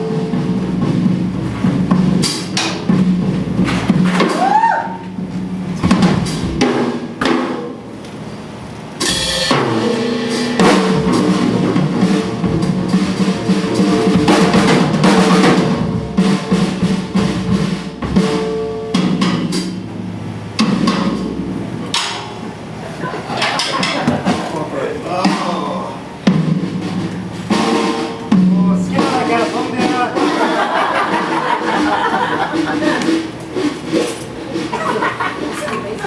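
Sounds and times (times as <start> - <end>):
live band music: 0.0 - 7.5, 9.0 - 23.1, 23.7 - 36.0
kick and snare drum hits: 5.2 - 7.6.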